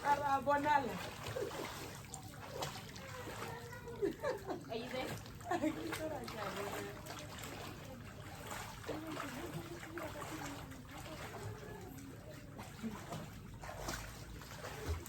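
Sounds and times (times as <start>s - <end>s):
water trickling and splashing: 0.0s - 15.0s
faint voices: 2.4s - 13.4s.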